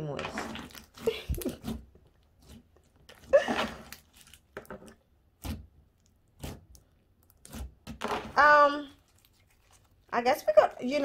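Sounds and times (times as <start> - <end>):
hands squishing slime: 8.9 - 11.0.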